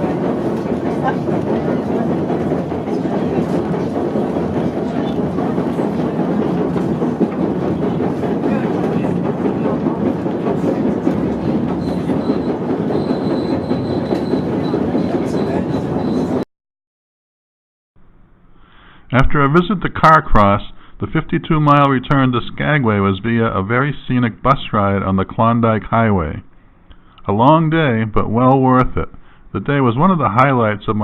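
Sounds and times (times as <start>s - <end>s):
train wheels rumbling on rails: 0.0s - 16.4s.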